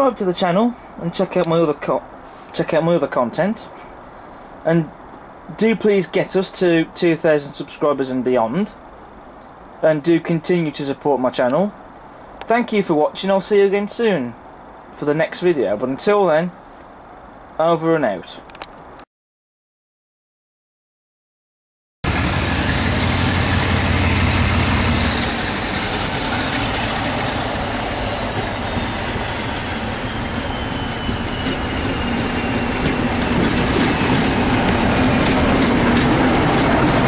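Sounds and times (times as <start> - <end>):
train coaches rumbling past: 22.0 - 37.0
locomotive engine humming: 22.1 - 37.0.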